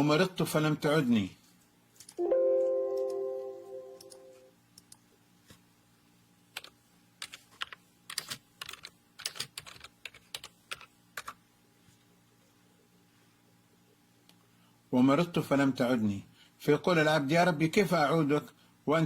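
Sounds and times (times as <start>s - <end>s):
pitched tone: 2.2s - 4.5s
computer keyboard typing: 6.6s - 11.4s.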